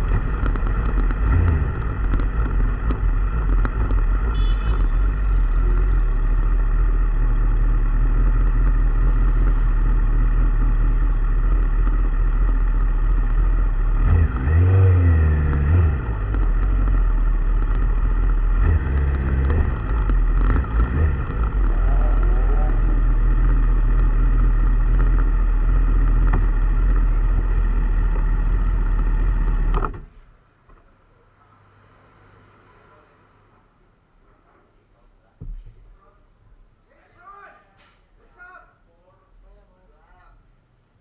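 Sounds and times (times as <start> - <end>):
vehicle engine running and revving: 0.0 - 30.0.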